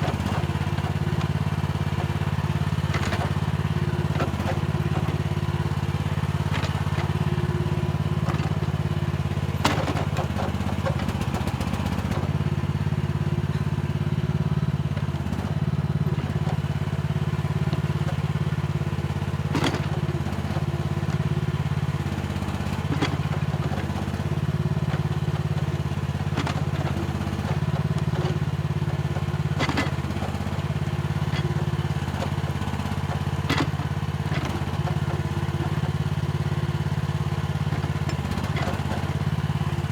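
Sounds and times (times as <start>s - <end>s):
excavator engine running: 0.0s - 39.9s
excavator bucket knocks and clanks: 9.6s - 12.3s, 19.1s - 39.3s.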